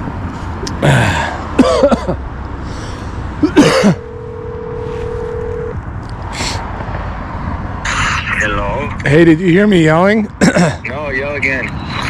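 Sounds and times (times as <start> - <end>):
throat-clearing vocal sounds: 0.7 - 2.2, 3.4 - 4.0, 10.4 - 10.9
phone ringback tone: 3.9 - 5.8.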